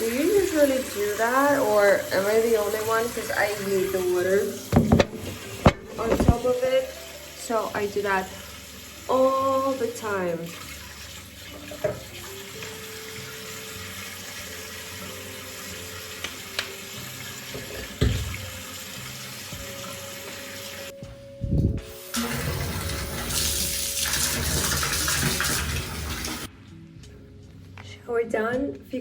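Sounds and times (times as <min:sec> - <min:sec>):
water running from tap: 0:00.0 - 0:21.0, 0:21.7 - 0:26.5
soft background music: 0:00.0 - 0:29.0
knock: 0:04.7 - 0:06.5.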